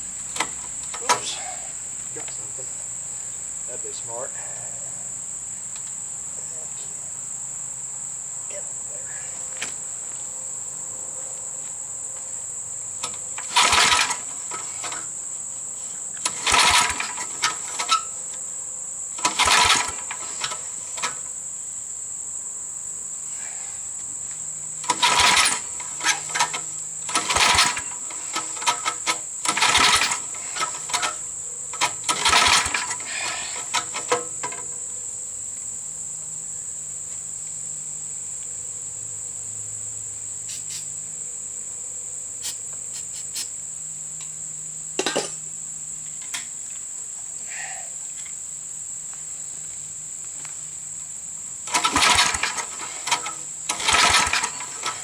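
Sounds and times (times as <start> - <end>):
mower engine cranking: 0.0 - 2.6, 12.9 - 18.4, 19.1 - 21.4, 24.7 - 34.9, 45.0 - 45.4, 51.5 - 55.0
crickets chirping: 0.0 - 55.0.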